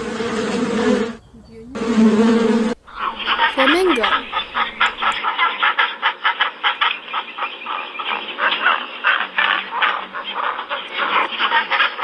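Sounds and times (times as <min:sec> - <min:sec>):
flamingos honking and gabbling: 0:01.8 - 0:05.2.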